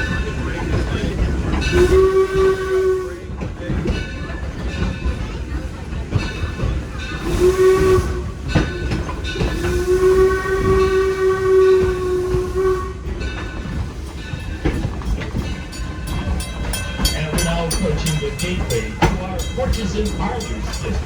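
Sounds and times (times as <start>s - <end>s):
train rumbling on rails: 0.0s - 21.0s
steam locomotive whistle blast: 1.7s - 3.3s, 7.2s - 8.6s, 9.5s - 13.1s.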